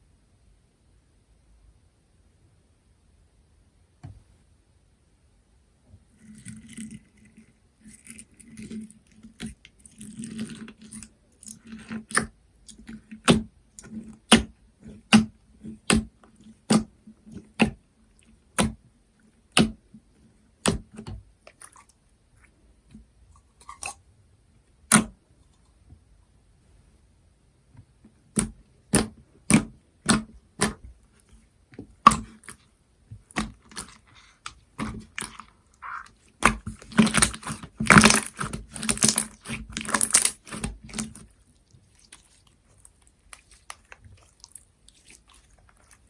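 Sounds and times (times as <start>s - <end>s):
slime popping: 28.3s - 30.9s, 32.0s - 32.6s, 34.8s - 41.3s
slime squished by hand: 28.3s - 46.0s.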